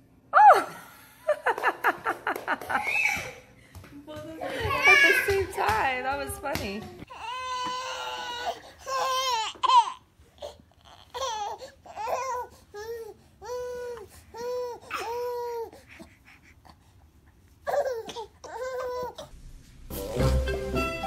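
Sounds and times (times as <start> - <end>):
baby crying: 4.5 - 5.5, 7.1 - 15.8.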